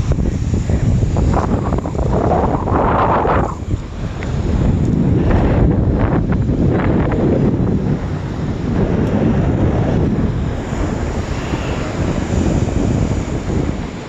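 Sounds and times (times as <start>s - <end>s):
ocean surf washing: 0.0s - 14.0s
wind buffeting microphone: 0.0s - 14.0s.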